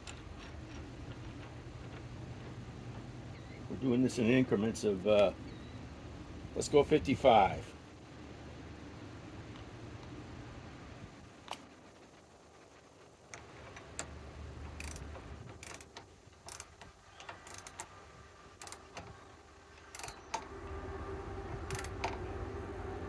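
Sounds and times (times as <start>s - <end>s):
torque wrench ratcheting clicks: 14.8s - 15.9s, 17.4s - 17.9s, 19.9s - 20.4s
low hum: 18.3s - 23.0s.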